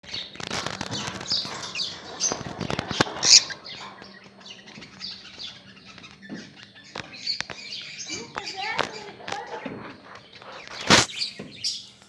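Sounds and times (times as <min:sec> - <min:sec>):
lovebirds chirping and chattering: 0:00.0 - 0:12.0
loud shrill bird call: 0:00.8 - 0:12.0.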